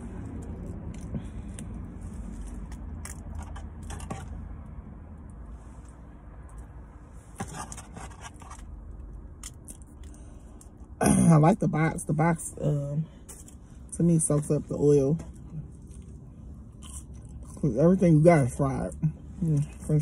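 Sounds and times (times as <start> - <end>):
low rumble inside a car: 0.0 - 20.0
person chewing food: 0.1 - 4.4, 15.3 - 17.6.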